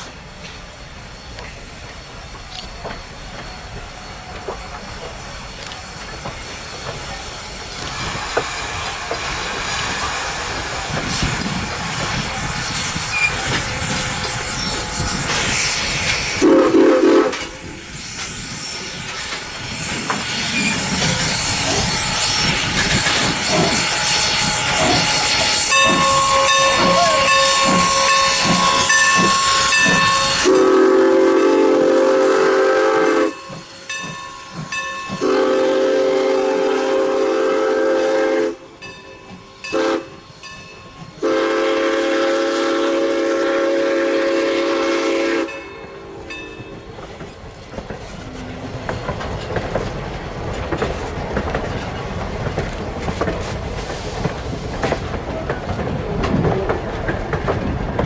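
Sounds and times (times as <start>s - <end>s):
steam locomotive hissing: 0.0s - 58.0s
train passing rumble: 0.0s - 58.0s
wheels clacking over rail joints: 17.2s - 30.5s, 46.3s - 58.0s
train chime whistle: 20.3s - 46.4s.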